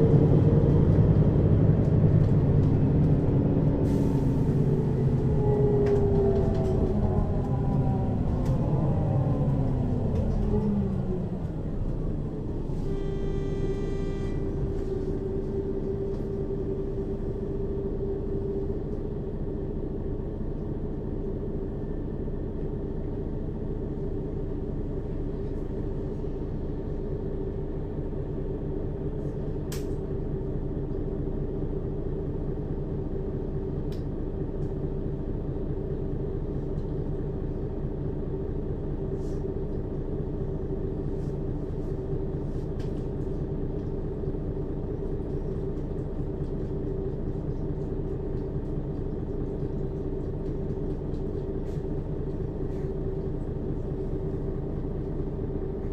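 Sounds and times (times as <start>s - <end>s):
bus engine: 0.0s - 55.9s
brief high tone: 12.7s - 15.5s.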